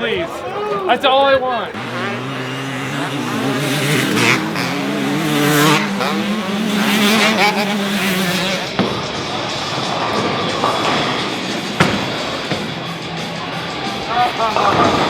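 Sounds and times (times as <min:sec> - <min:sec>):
vehicle engines running: 0:00.0 - 0:15.0.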